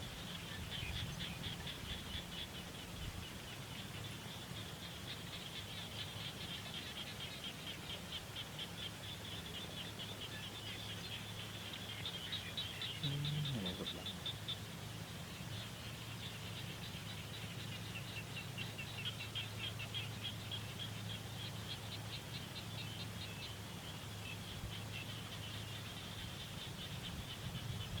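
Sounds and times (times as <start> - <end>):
steady low hum: 12.8 - 18.0.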